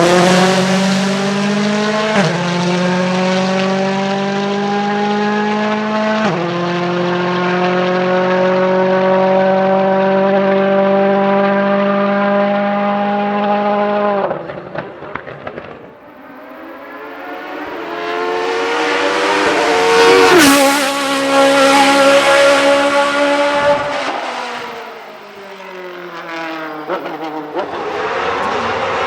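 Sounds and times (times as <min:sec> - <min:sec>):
race car passing at full throttle: 0:00.0 - 0:29.0
rally car engine at high revs: 0:00.0 - 0:29.0
engine crackles and pops: 0:14.2 - 0:16.2.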